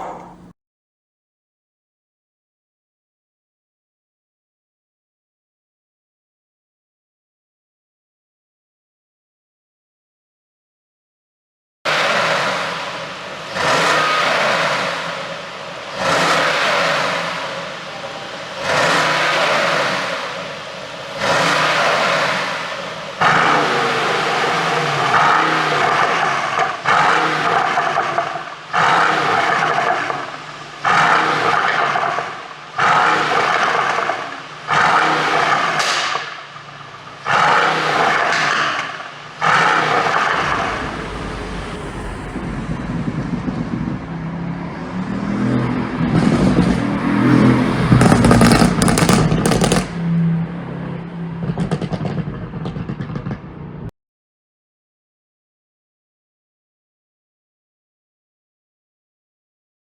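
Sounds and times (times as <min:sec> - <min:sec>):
car engine revving: 0:11.9 - 0:35.8, 0:36.8 - 0:50.0
exhaust crackles and pops: 0:47.8 - 0:50.0, 0:51.4 - 0:53.8.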